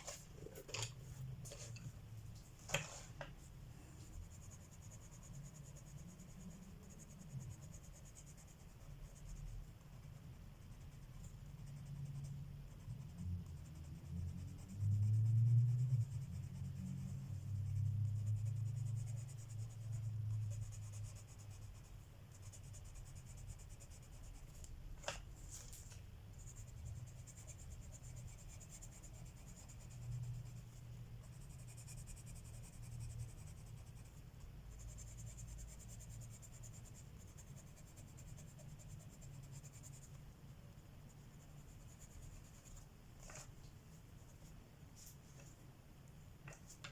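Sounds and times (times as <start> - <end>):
pencil scratching on paper: 4.0 - 40.2, 40.8 - 43.5.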